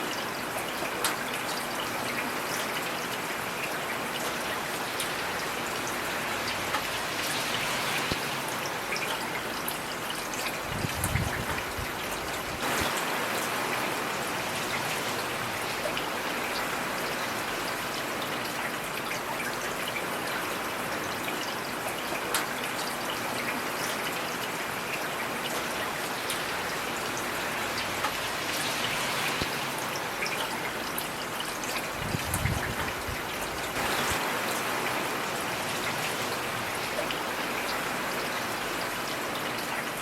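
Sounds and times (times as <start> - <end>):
heavy rain hissing: 10.6 - 17.0, 26.5 - 38.7.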